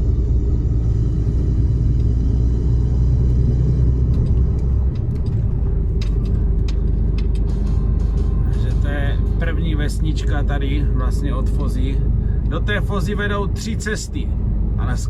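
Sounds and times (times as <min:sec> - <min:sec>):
truck engine deep rumble: 0:00.0 - 0:15.0.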